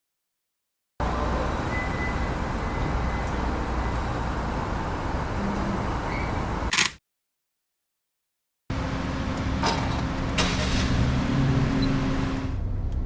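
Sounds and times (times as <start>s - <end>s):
road traffic rumble: 1.0s - 6.7s, 8.7s - 13.0s.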